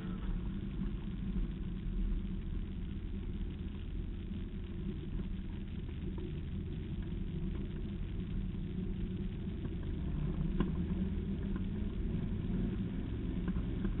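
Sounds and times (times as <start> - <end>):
car engine low rumble: 0.0 - 14.0.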